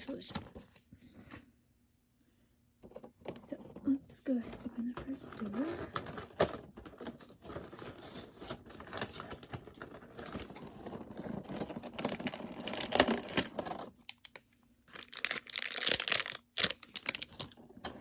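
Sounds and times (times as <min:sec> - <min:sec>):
toy packaging being opened: 0:04.9 - 0:18.0.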